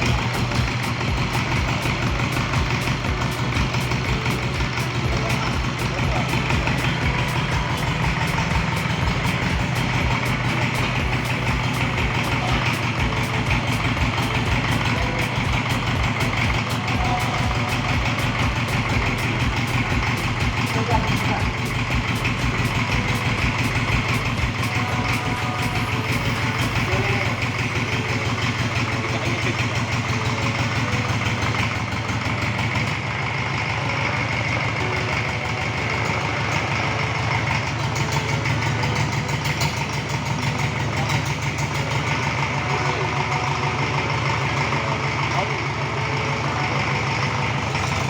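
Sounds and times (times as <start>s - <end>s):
diesel engine idling: 0.0s - 48.0s.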